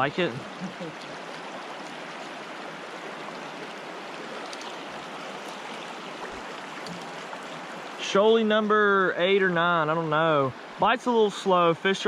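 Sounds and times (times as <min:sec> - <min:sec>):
water rushing over rapids: 0:00.0 - 0:12.0.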